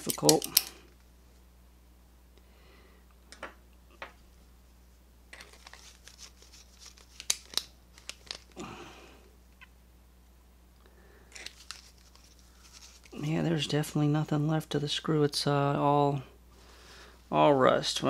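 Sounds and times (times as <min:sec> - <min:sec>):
hand tool clicking on metal: 0:00.0 - 0:00.8.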